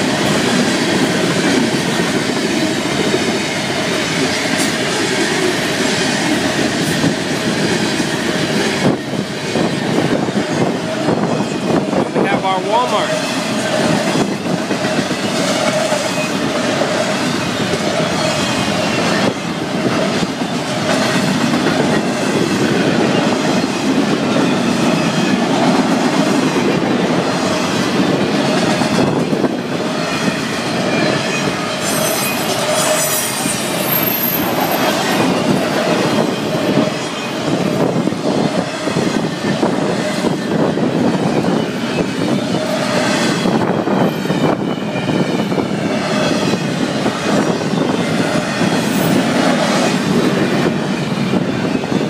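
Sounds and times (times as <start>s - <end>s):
freight train wheels rumbling: 0.0s - 52.0s
wheels clacking over rail joints: 13.1s - 37.9s
wheels squealing: 26.5s - 37.8s, 38.6s - 52.0s.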